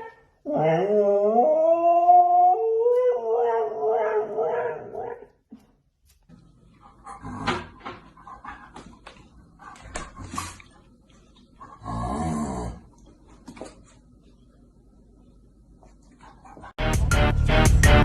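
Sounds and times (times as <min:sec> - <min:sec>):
dog howling: 0:00.4 - 0:05.2.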